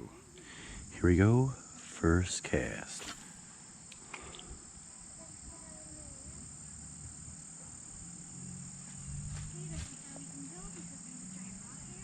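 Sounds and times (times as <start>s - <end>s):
insects droning: 0.0s - 12.0s
low uneven rumble: 4.5s - 12.0s.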